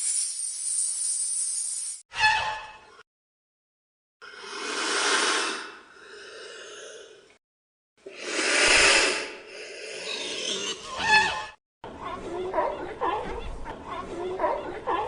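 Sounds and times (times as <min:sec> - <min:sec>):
animal hissing: 0:04.4 - 0:05.8, 0:08.1 - 0:10.7.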